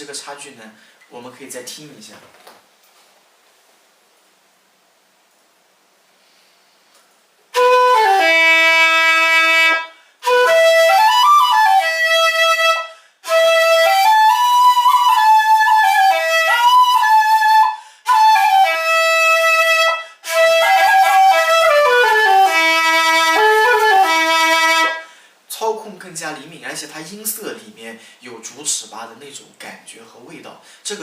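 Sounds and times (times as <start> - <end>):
bamboo flute melody: 7.5 - 25.1.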